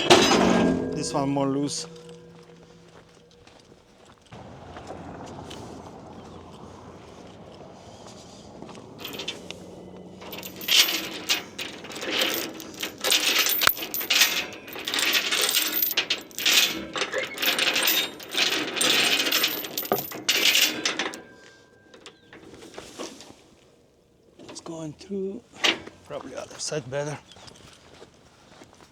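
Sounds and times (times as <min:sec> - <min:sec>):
metal hardware clinking and rattling: 0:00.0 - 0:03.7, 0:08.7 - 0:23.2.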